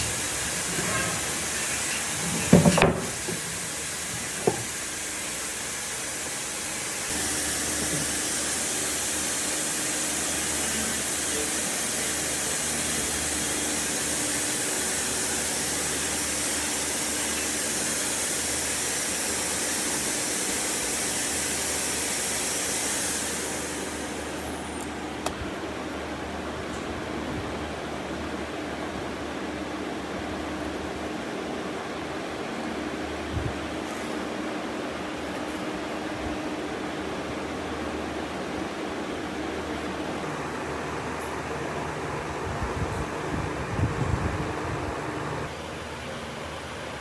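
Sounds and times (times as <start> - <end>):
steady hiss: 0.0 - 25.4
sharp knocks: 2.4 - 3.4.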